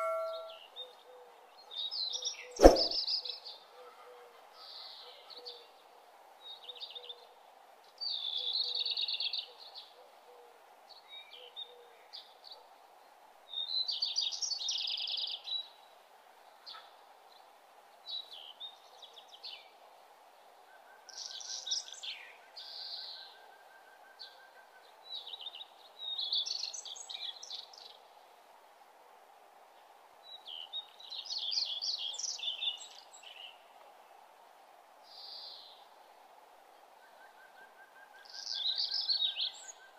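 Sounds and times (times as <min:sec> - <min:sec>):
high trilled birdsong: 0:00.0 - 0:00.7
faint steady hiss: 0:00.0 - 0:39.9.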